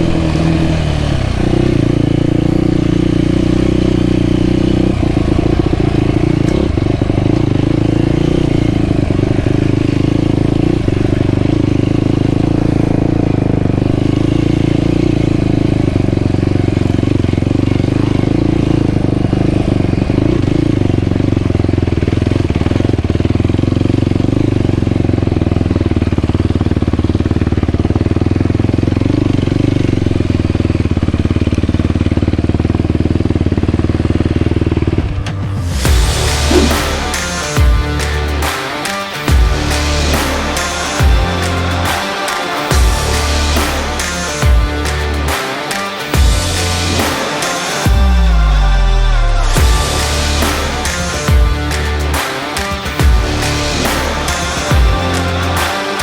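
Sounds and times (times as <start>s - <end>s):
quad engine running: 0.0s - 56.0s.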